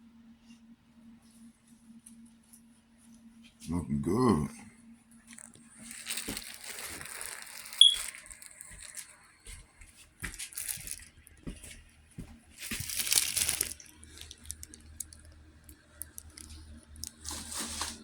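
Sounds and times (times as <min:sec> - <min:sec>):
rustling and crinkling: 0:05.2 - 0:18.0.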